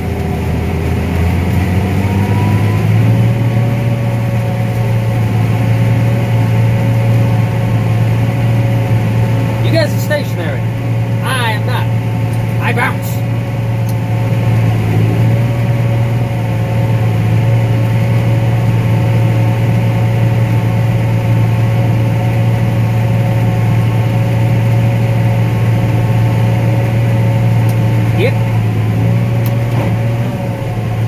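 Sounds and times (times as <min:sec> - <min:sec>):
combine harvester drone: 0:00.0 - 0:31.0
high-pitched machine whine: 0:12.7 - 0:17.9.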